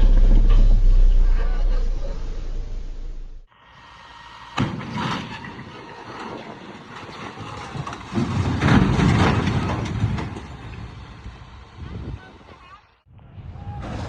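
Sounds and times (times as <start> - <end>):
road vehicle noise: 0.0 - 7.6, 9.6 - 13.1.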